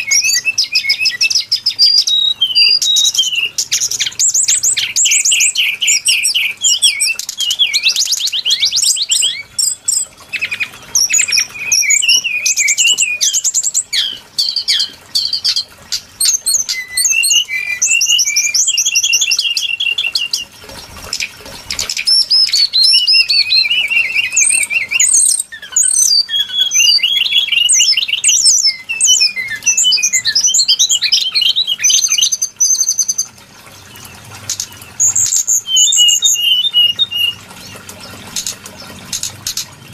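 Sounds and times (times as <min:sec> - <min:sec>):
bird trills and whistles: 0:00.0 - 0:39.7.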